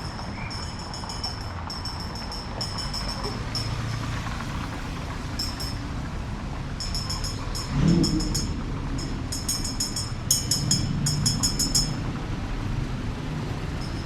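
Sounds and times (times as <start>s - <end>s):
high fast-pulsing chirring: 0.0s - 4.0s, 4.7s - 5.9s, 6.8s - 12.0s
traffic rumble: 0.0s - 14.0s.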